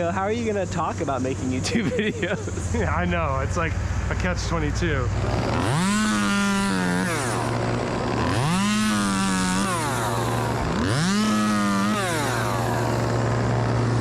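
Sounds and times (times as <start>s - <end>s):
low engine hum: 0.0s - 14.0s
chainsaw revving: 5.1s - 14.0s.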